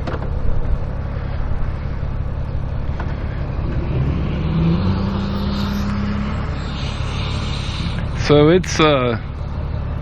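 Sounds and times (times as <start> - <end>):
road and wind noise: 0.0 - 10.0
rising tone: 3.2 - 8.4.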